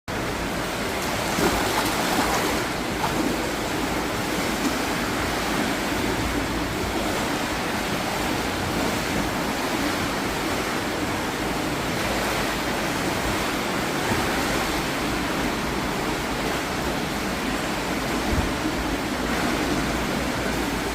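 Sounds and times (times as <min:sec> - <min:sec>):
sea waves washing on shore: 0:00.1 - 0:20.9.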